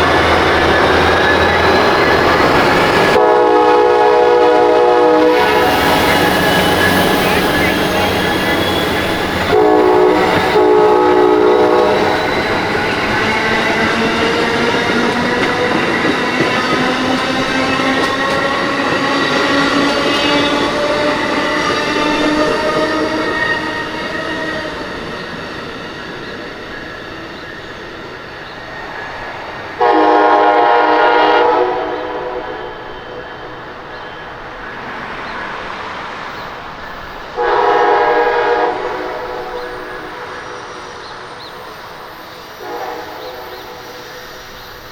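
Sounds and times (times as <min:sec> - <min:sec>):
train running past: 0:00.0 - 0:44.9
train horn blasts: 0:02.2 - 0:24.0, 0:29.8 - 0:33.2, 0:37.4 - 0:41.6, 0:42.4 - 0:44.4.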